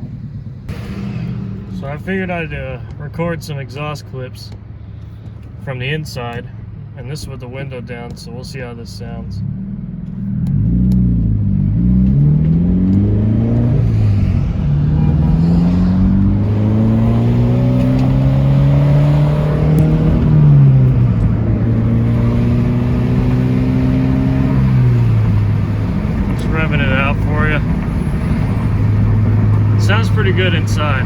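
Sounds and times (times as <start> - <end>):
car engine accelerating through gears: 9.4 - 31.0.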